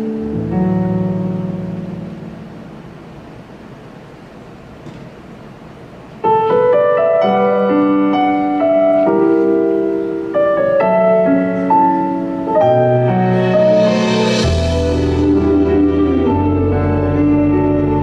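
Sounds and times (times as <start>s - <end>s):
piano playing slow chords: 0.0s - 4.2s, 6.2s - 18.0s
rising hiss: 12.8s - 18.0s.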